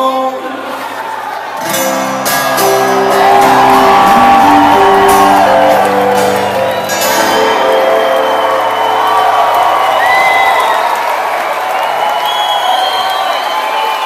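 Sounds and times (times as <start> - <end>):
crowd shouting and whooping: 0.6 - 14.0
live rock band playing: 1.6 - 10.4.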